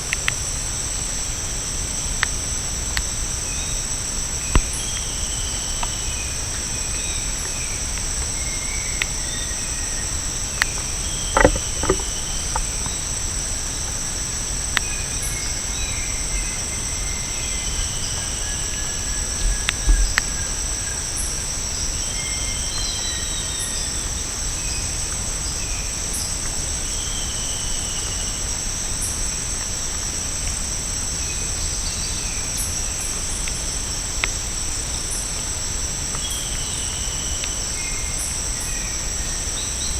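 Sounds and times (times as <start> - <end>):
insects chorus: 0.0 - 39.9
knocks: 11.3 - 12.6.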